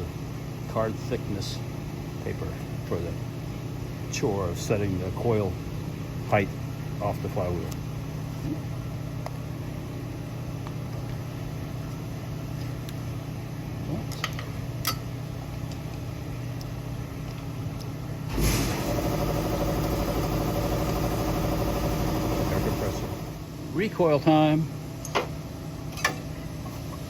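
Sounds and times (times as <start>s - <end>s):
steady mechanical hum: 0.0s - 27.0s
loud hum with many tones: 15.1s - 26.7s.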